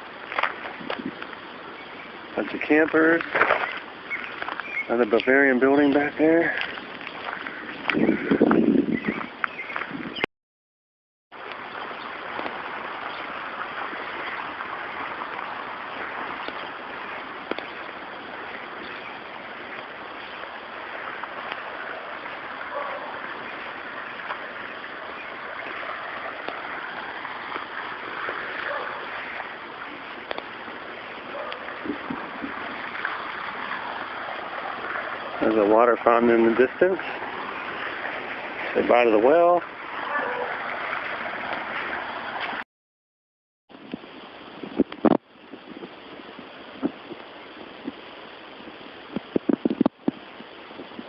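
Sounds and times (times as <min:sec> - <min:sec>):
water fountain splashing: 0:00.0 - 0:09.9, 0:11.3 - 0:42.6.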